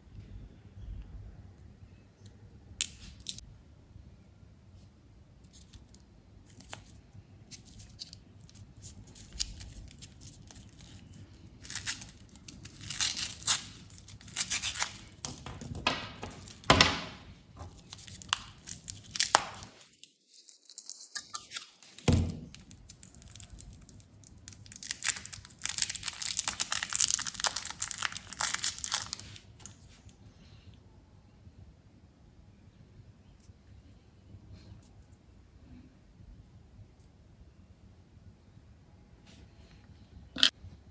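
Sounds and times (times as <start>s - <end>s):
candy wrappers crinkling: 5.5s - 29.8s.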